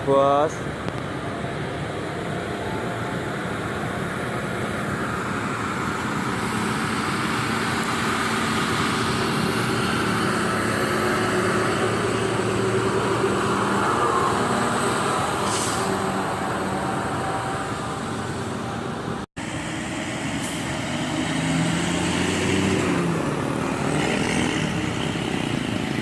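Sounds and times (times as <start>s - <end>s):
vehicle engine and road noise: 0.0s - 26.0s.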